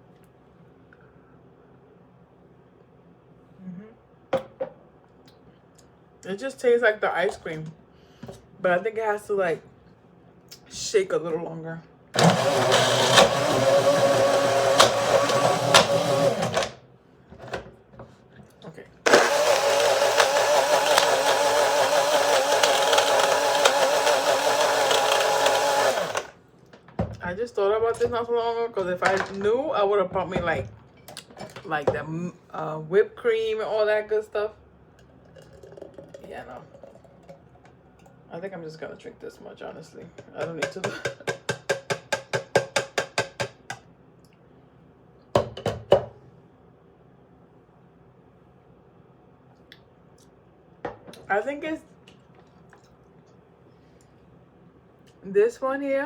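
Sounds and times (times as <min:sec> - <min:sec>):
blender motor running: 0:12.2 - 0:16.8, 0:19.1 - 0:26.4.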